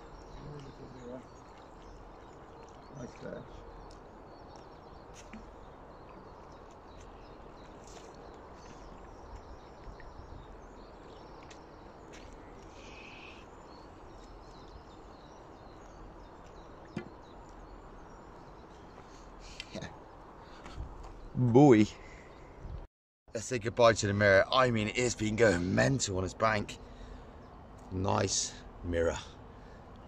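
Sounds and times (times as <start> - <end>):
faint bird chirps: 0.0 - 21.4.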